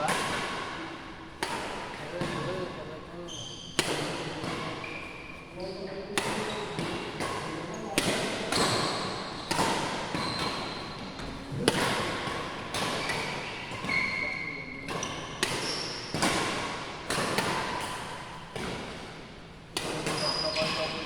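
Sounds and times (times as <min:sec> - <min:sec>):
shoes squeaking on court: 0:03.2 - 0:03.8, 0:04.6 - 0:06.8, 0:07.5 - 0:11.6, 0:12.9 - 0:16.1, 0:19.9 - 0:21.0
rackets hitting shuttlecock: 0:03.7 - 0:04.9, 0:06.1 - 0:21.0.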